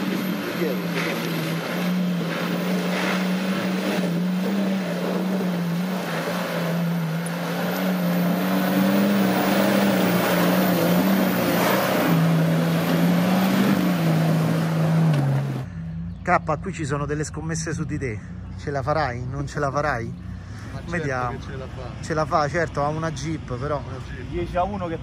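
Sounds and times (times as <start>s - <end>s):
loud rough rushing noise: 0.0s - 15.8s
engine running under load: 0.0s - 25.0s.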